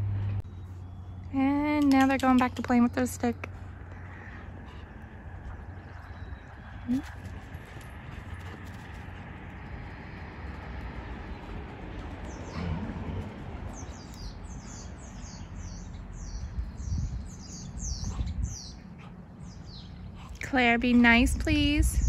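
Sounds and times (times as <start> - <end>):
low outdoor rumble: 0.0 - 22.0
songbird chirping: 11.2 - 20.7.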